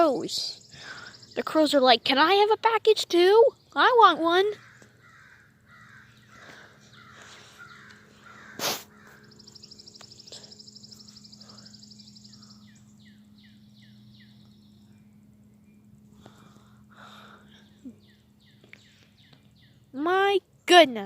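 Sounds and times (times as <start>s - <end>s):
steady low hum: 0.0s - 21.0s
small bird trilling: 4.4s - 14.9s
crows cawing: 4.5s - 9.6s.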